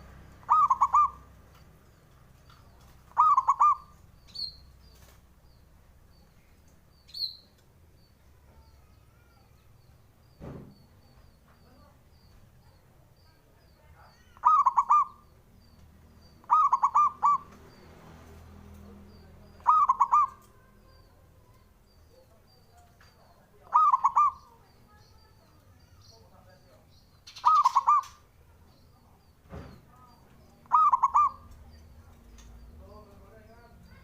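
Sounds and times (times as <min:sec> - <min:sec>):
dove cooing: 0:00.0 - 0:01.3, 0:03.0 - 0:04.6, 0:14.4 - 0:15.3, 0:16.4 - 0:17.5, 0:19.6 - 0:21.0, 0:23.6 - 0:24.6, 0:27.3 - 0:28.3, 0:30.6 - 0:32.0.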